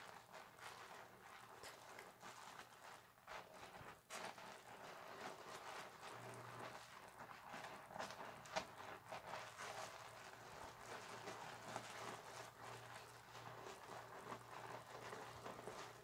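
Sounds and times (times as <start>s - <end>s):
wet loofah scrubbing soap: 0.0s - 16.0s.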